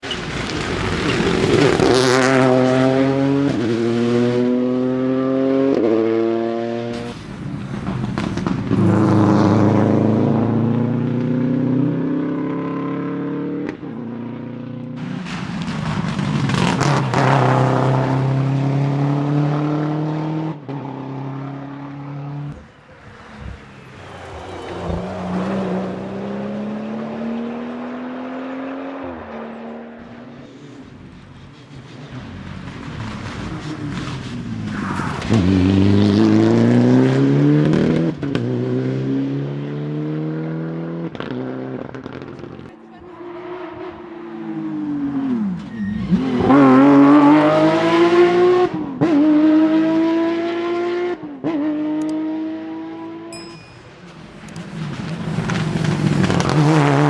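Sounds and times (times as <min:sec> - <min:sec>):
rally car engines revving through gears: 0:00.0 - 0:57.0.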